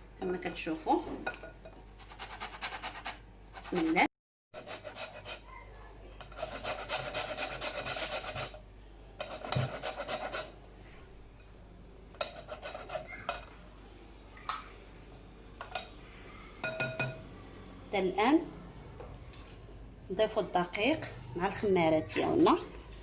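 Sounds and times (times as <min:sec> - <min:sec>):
lemon rasping on hand grater: 0:06.4 - 0:08.6, 0:09.2 - 0:10.5, 0:12.3 - 0:13.1.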